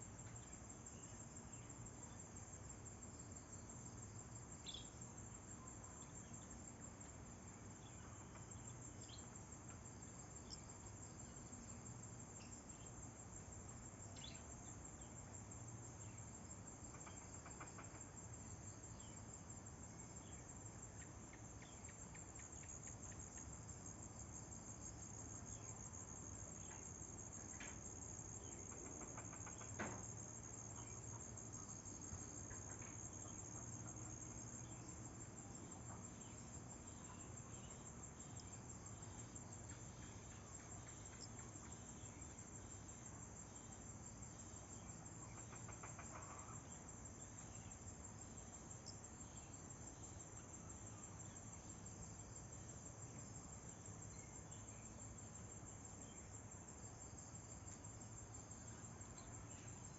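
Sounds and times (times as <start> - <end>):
crickets trilling: 0.0 - 59.9.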